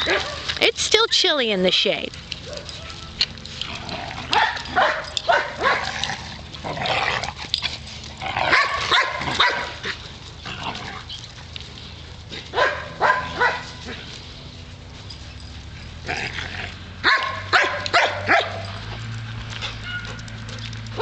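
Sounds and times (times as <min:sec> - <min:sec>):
dogs barking: 0:00.0 - 0:00.6, 0:02.3 - 0:07.2, 0:08.3 - 0:10.0, 0:12.3 - 0:14.2, 0:15.1 - 0:18.9, 0:19.6 - 0:21.0.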